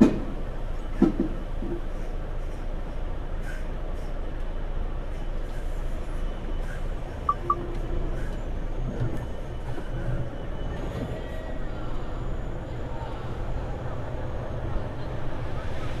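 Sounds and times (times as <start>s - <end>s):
ferry engine and hull rumble: 0.0s - 16.0s
short high beeps: 7.3s - 7.7s.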